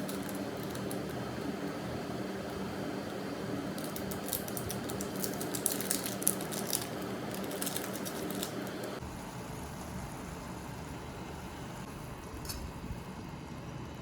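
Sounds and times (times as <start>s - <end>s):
small objects clicking and rustling: 0.0s - 1.2s, 3.7s - 8.8s
steady hum: 0.0s - 14.0s.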